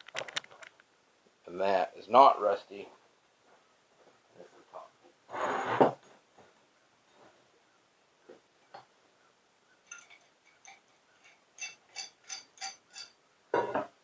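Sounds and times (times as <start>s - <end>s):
metallic taps and clinks: 9.9s - 13.9s.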